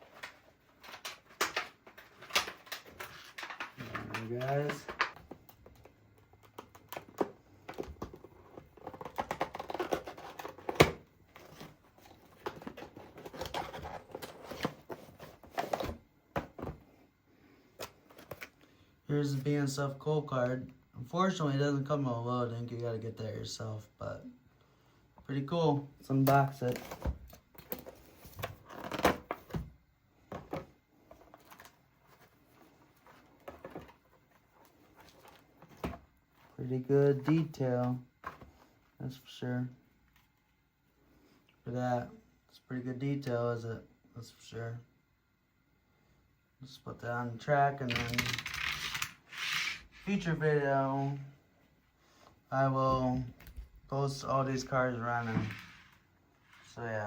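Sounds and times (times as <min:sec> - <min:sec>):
box and packaging rustling: 0:00.0 - 0:17.0, 0:17.8 - 0:18.6, 0:26.1 - 0:29.7, 0:30.3 - 0:38.8.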